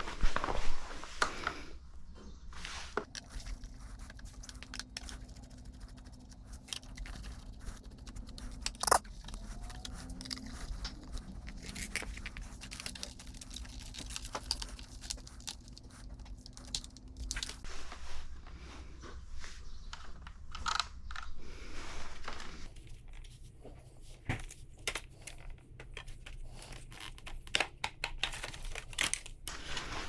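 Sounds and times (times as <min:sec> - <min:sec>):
steady low hum: 0:03.0 - 0:19.4
plastic parts clicking and rattling: 0:03.1 - 0:17.6, 0:24.8 - 0:29.5.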